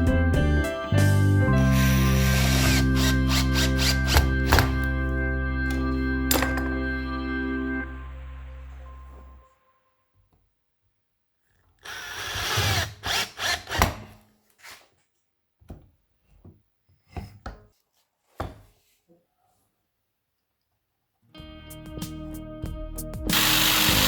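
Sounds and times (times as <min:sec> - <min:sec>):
power tool cutting wood: 0:01.5 - 0:09.4, 0:11.9 - 0:14.0, 0:23.3 - 0:24.0.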